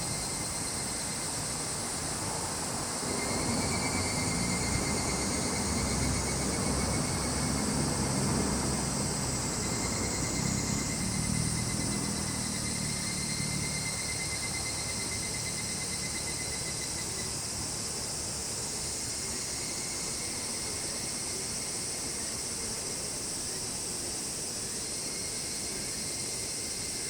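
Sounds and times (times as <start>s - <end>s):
cicadas droning: 0.0s - 27.0s
crickets chirping: 0.0s - 27.0s
distant traffic rumble: 1.7s - 19.4s.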